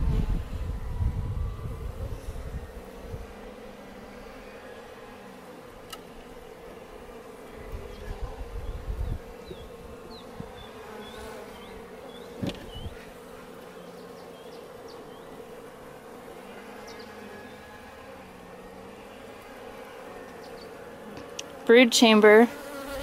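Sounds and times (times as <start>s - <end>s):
bees buzzing: 0.0s - 23.0s
low thumps and rustling: 12.2s - 13.2s.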